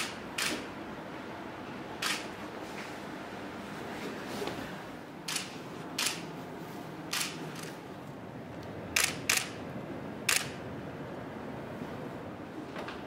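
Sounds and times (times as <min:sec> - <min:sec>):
room noise: 0:00.0 - 0:13.0
camera shutter clicks: 0:00.4 - 0:00.6, 0:02.0 - 0:02.3, 0:05.3 - 0:06.2, 0:07.1 - 0:07.7, 0:09.0 - 0:09.6, 0:10.3 - 0:10.6.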